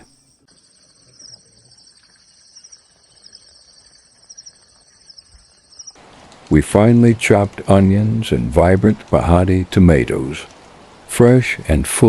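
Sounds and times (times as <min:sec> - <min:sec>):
insect chirps: 0:00.0 - 0:06.2
insects buzzing: 0:00.0 - 0:09.0.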